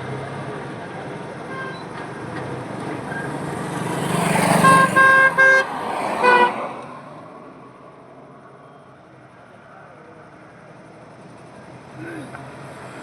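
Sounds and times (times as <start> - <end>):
highway traffic noise: 0.0 - 13.0
vehicle horn toots: 4.4 - 6.6.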